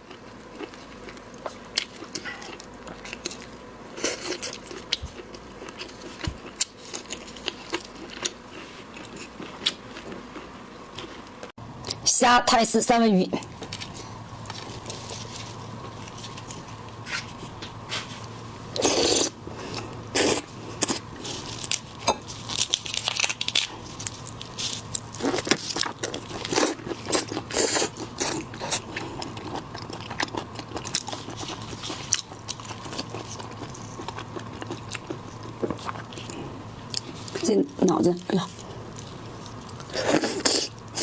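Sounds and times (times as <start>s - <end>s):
biting and chewing: 13.4s - 41.0s
shells cracking and crunching: 20.8s - 27.4s.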